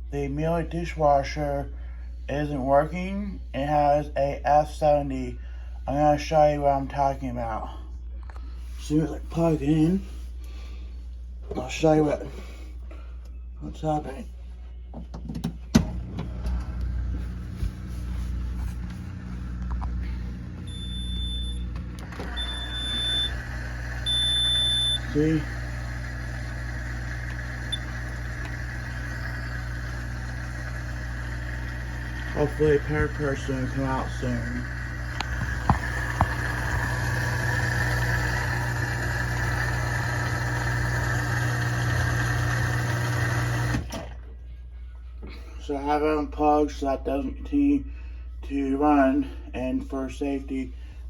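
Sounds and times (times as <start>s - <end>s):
dishwasher motor hum: 15.2s - 44.4s
long high-pitched beeps: 22.4s - 23.4s, 24.0s - 25.2s.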